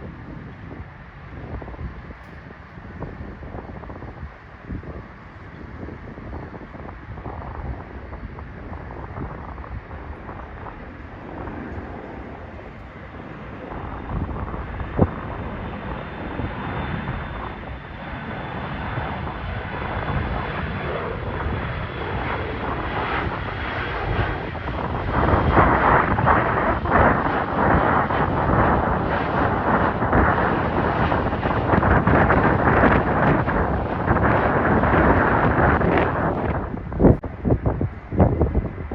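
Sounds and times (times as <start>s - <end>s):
high turbine whine: 0.0s - 38.9s
jet engine roar: 0.0s - 38.9s.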